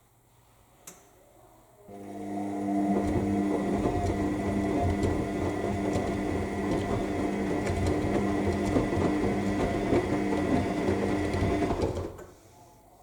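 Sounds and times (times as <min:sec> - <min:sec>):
washing machine motor humming: 0:01.9 - 0:12.2.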